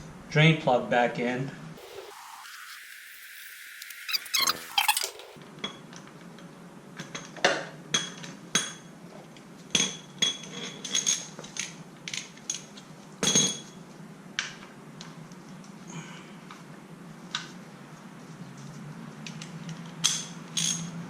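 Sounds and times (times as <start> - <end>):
socket wrench metallic clinks: 20.0 - 20.9.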